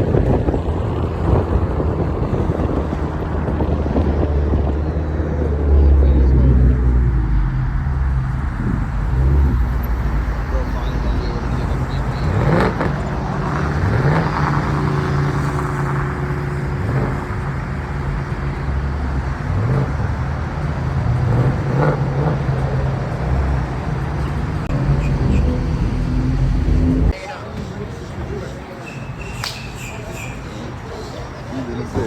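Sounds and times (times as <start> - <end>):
car engine speeding up: 0.3 - 27.2.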